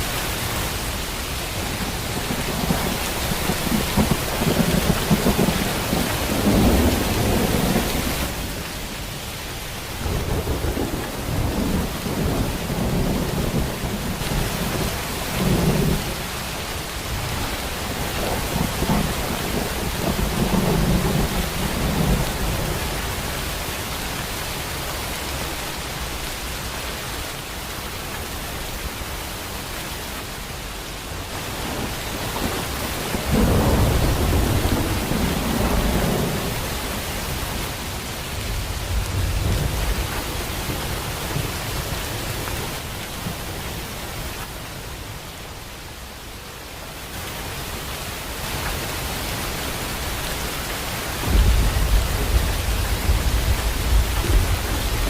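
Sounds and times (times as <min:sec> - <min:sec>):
rain downpour: 0:00.0 - 0:55.0
rolling thunder: 0:01.8 - 0:08.4, 0:09.9 - 0:16.2, 0:17.1 - 0:23.2, 0:31.5 - 0:37.0, 0:51.2 - 0:55.0.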